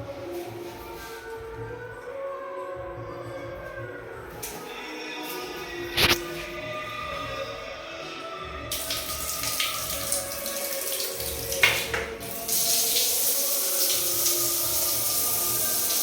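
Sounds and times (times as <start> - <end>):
water running from a tap: 8.7 - 16.0.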